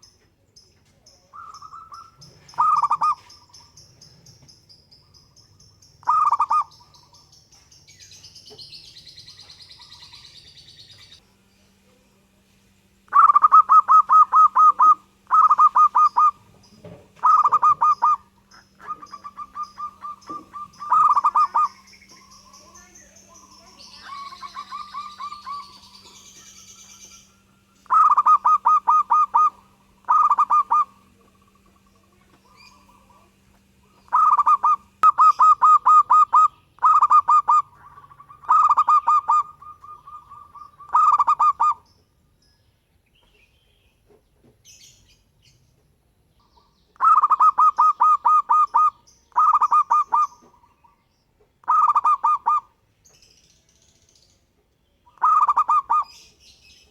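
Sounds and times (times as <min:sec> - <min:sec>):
dove cooing: 0:01.2 - 0:03.8, 0:06.0 - 0:07.2, 0:13.1 - 0:41.9, 0:47.0 - 0:51.0, 0:51.6 - 0:52.7, 0:55.1 - 0:56.4.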